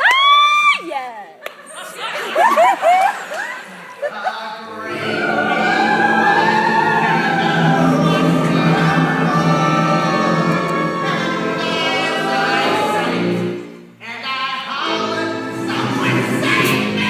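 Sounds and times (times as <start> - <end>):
singing voice sliding in pitch: 4.7 - 13.4
chorus holding a chord: 4.7 - 13.6.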